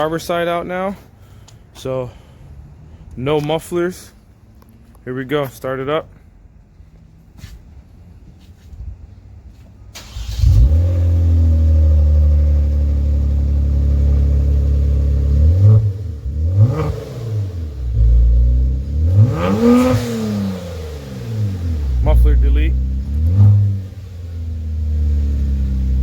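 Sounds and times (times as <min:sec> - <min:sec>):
car engine idling and revving: 0:10.0 - 0:26.0.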